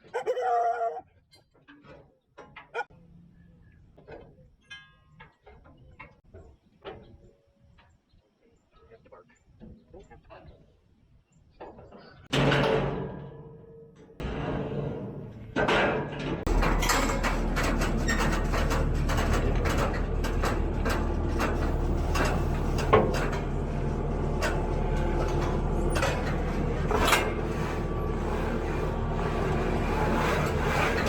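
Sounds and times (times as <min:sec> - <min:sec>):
metal clanks and knocks: 0:11.6 - 0:31.0
diesel engine running: 0:16.5 - 0:31.0.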